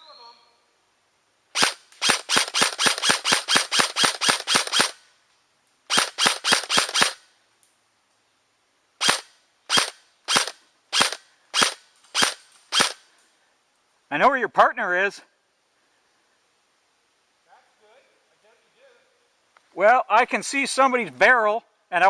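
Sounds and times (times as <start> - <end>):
airsoft gun firing: 1.5 - 5.0, 5.9 - 7.2, 9.0 - 13.0.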